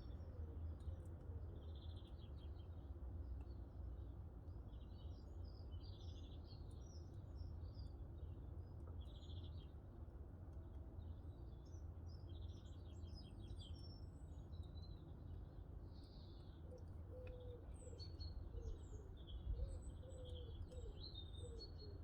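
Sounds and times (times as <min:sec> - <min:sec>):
songbirds chirping and trilling: 0:11.1 - 0:22.0
faint fire crackle ticks: 0:16.0 - 0:17.5, 0:20.6 - 0:20.9.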